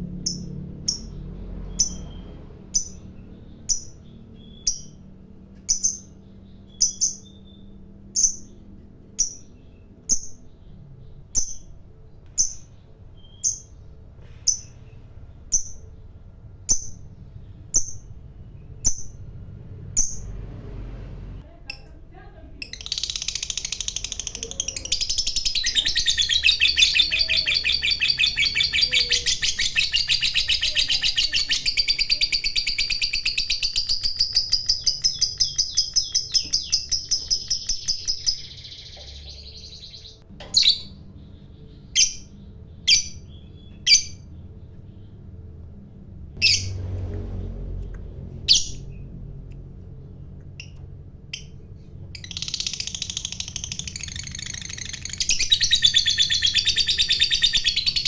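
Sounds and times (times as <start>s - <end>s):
sharp bird chirps: 0.1s - 20.4s, 22.7s - 45.2s, 50.6s - 58.0s
lovebird chattering trill: 5.7s - 8.6s, 22.6s - 44.4s, 52.2s - 58.0s.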